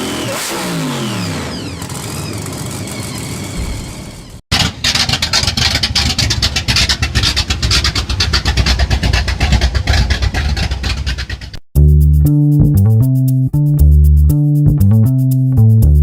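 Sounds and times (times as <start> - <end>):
car engine running loud: 0.0 - 11.4.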